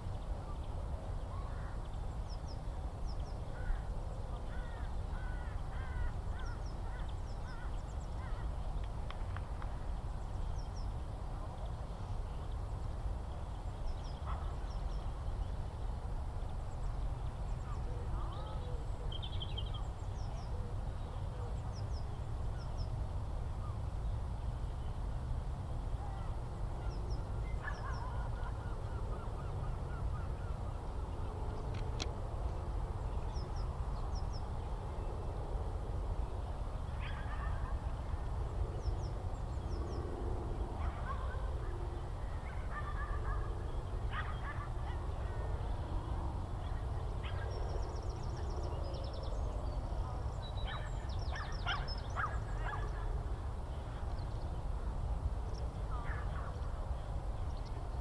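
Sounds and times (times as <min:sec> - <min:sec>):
bird calls: 0:01.3 - 0:08.8, 0:26.1 - 0:32.1, 0:40.8 - 0:45.4, 0:46.6 - 0:53.2.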